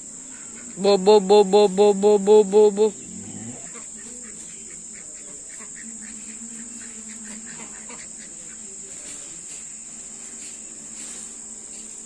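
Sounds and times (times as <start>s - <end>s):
insect chorus: 0.0s - 12.0s
low hum: 0.7s - 3.8s.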